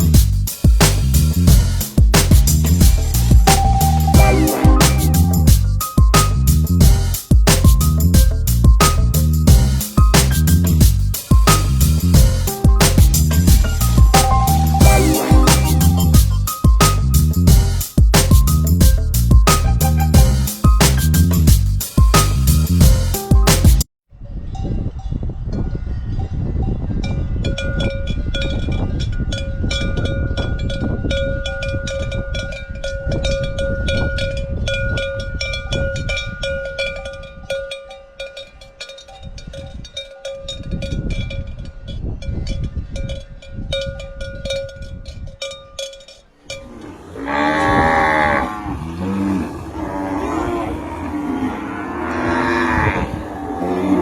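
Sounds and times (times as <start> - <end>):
cowbells clanking: 1.6 - 23.7, 27.1 - 48.0
cows mooing: 46.5 - 54.0.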